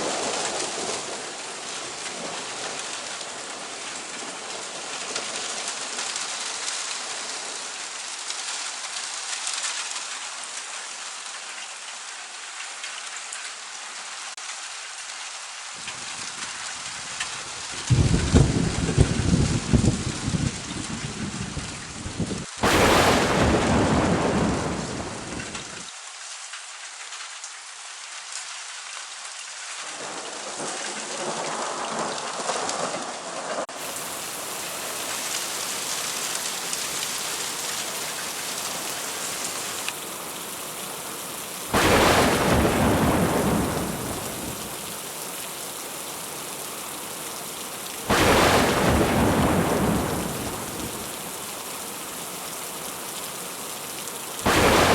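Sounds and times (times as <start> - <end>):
steady rain: 0.0 - 54.9
thunder cracks: 22.6 - 25.7, 41.7 - 44.8, 48.1 - 51.0, 54.4 - 54.9.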